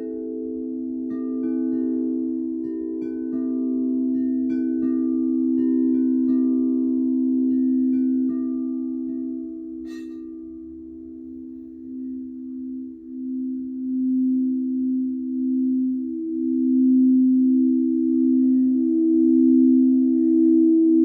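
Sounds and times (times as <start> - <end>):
singing bowls droning: 0.0 - 21.0
chime strikes: 7.5 - 10.7.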